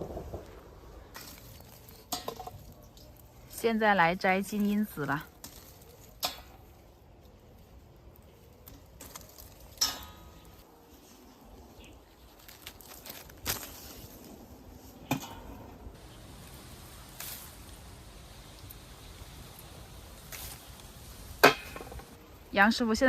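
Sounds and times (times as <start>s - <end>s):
wind rumble on microphone: 0.0s - 1.1s
rustling branches: 0.0s - 23.0s
sharp snaps of branches: 4.6s - 6.7s, 12.4s - 14.3s, 16.4s - 17.8s, 18.5s - 22.2s.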